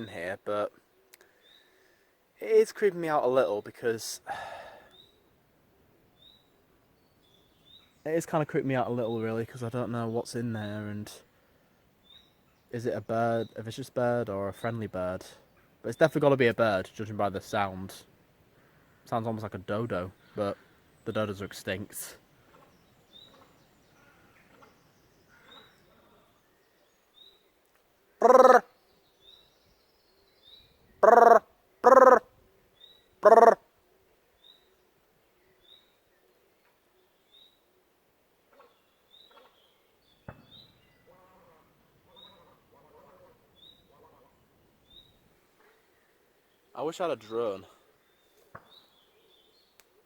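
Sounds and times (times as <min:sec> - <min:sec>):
lower wavering bird calls: 0:22.2 - 0:33.7, 0:38.6 - 0:49.8
faint high bird chirps: 0:38.5 - 0:45.9.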